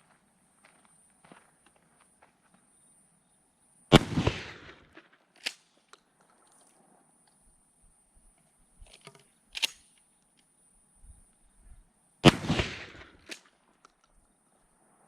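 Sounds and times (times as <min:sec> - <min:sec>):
shotgun shot booming: 0:03.9 - 0:05.0, 0:12.2 - 0:13.3
sharp clicks: 0:08.8 - 0:10.1.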